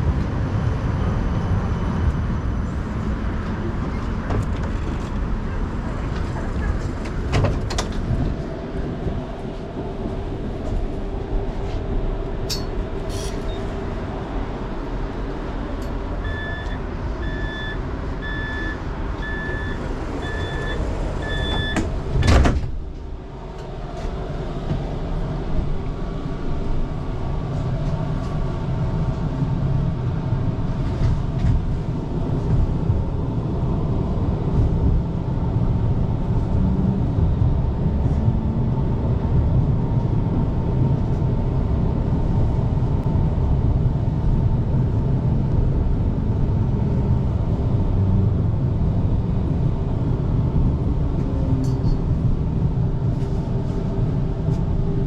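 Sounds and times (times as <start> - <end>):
heavy street traffic rumble: 0.0 - 55.0
vehicle warning beeps: 16.2 - 21.9.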